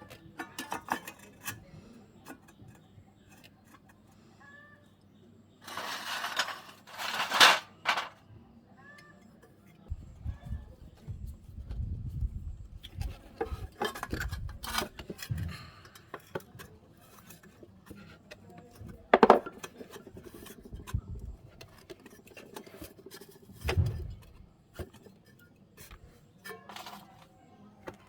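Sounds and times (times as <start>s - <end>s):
metal tools clinking and scraping: 0.0s - 4.2s, 5.6s - 8.3s, 12.8s - 28.0s
dull thump: 23.6s - 24.4s.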